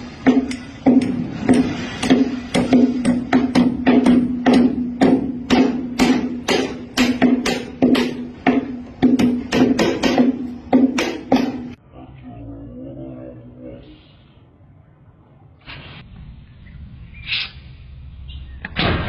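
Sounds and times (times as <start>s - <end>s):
rapid sharp knocks: 0.3s - 11.8s
steady low hum: 15.7s - 19.0s.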